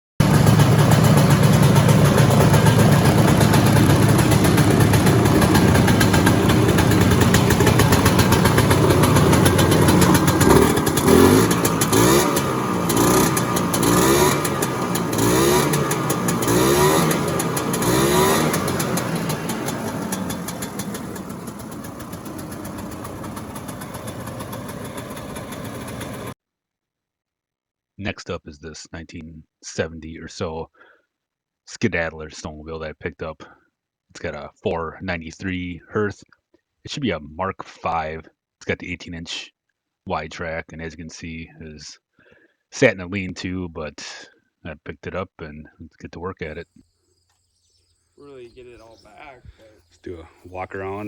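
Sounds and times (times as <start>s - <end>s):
snowmobile engine running and revving: 0.2s - 26.4s.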